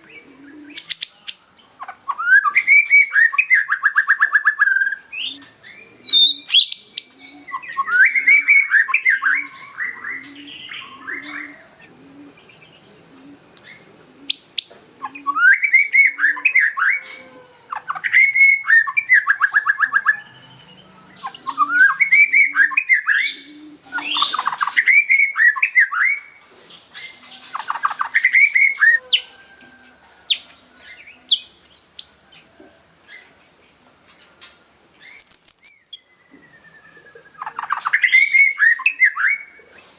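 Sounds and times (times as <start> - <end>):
bird singing whistled phrases: 2.1 - 11.7, 15.1 - 17.0, 18.0 - 26.4, 35.0 - 39.6.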